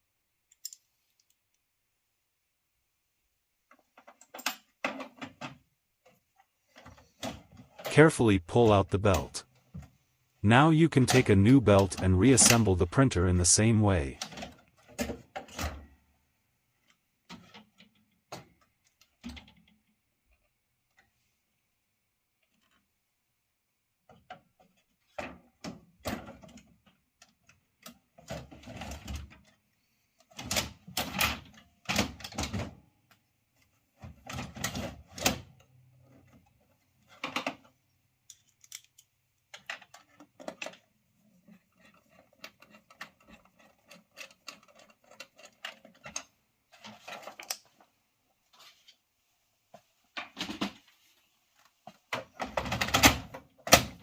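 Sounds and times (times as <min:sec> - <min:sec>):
plastic clicks and rattles: 0:34.0 - 0:47.9.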